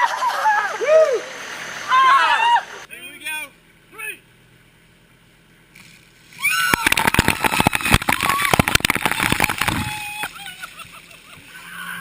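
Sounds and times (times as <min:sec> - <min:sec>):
people shrieking: 0:00.0 - 0:02.9, 0:06.4 - 0:10.8, 0:11.5 - 0:12.0
water splashing with rattling ice: 0:05.8 - 0:10.3.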